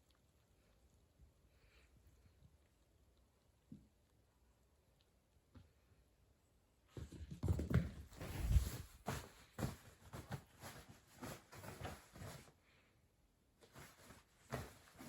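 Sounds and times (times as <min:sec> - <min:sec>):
kitten thumping and rustling bedding: 0:07.0 - 0:12.6, 0:13.6 - 0:15.0.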